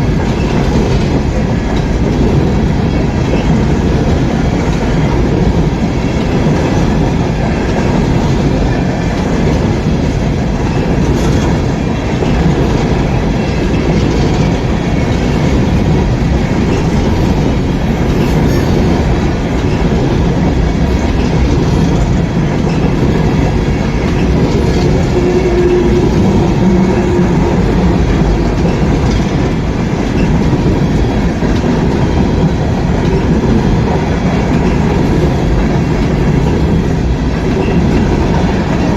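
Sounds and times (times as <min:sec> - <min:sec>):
freight train wheels rumbling: 0:00.0 - 0:38.9.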